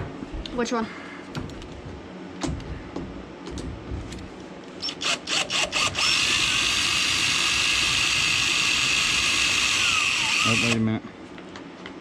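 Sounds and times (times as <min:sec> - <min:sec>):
power drill running: 0:04.8 - 0:10.8.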